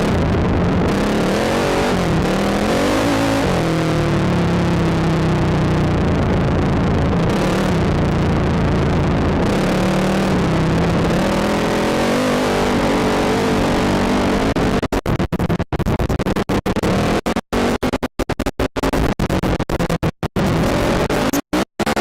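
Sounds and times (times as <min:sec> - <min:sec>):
atv engine revving: 0:00.0 - 0:14.8.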